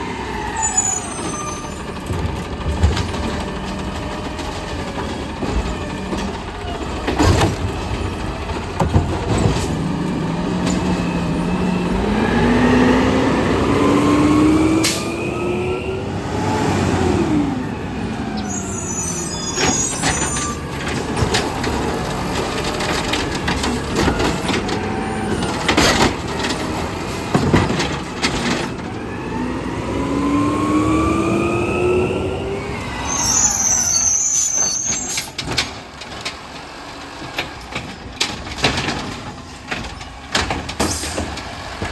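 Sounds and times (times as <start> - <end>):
cart slamming bangs: 5.4 - 11.4, 37.4 - 41.9
truck engine revving with whine: 9.8 - 20.6, 28.4 - 34.6.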